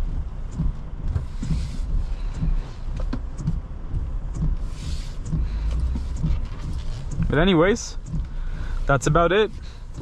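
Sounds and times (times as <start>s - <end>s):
rain tapping: 0.0s - 10.0s
road and tyre rumble: 0.0s - 10.0s.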